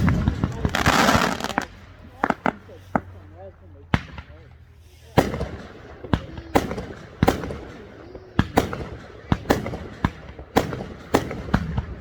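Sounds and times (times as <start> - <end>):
fireworks bursting with echo: 0.0 - 12.0.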